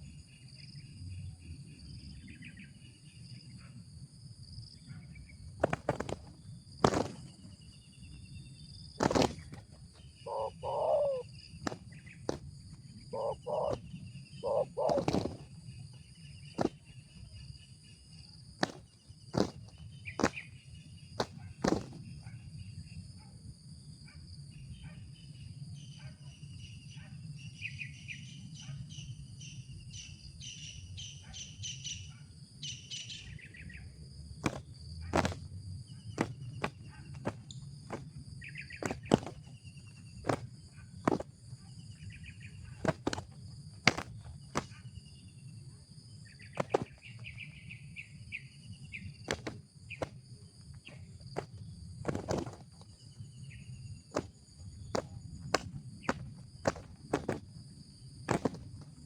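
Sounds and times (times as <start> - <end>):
high insect drone: 0.0 - 24.8
small birds chirping: 4.5 - 23.0, 24.6 - 59.0
sharp snaps: 14.9 - 15.4.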